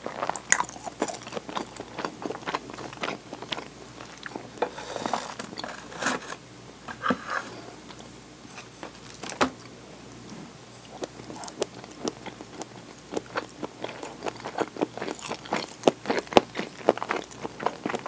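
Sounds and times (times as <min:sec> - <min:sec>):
crisp wet chewing: 0:00.0 - 0:04.6, 0:10.1 - 0:18.0.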